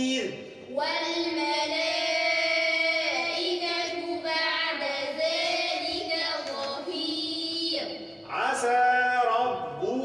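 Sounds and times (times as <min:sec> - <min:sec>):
children chanting together: 0:00.7 - 0:08.0.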